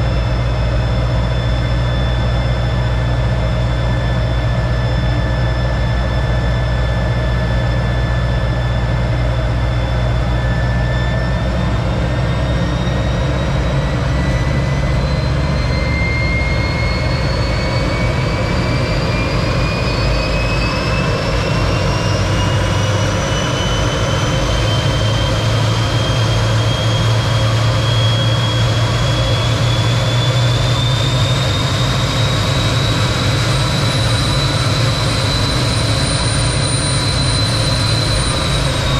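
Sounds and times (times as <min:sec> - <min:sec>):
jet engine rumble and whine: 0:00.0 - 0:38.9.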